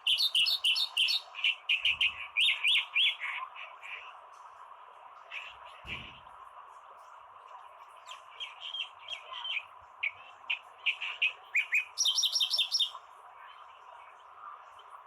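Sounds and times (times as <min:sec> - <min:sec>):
warbler singing: 0:00.0 - 0:04.1, 0:08.0 - 0:13.6.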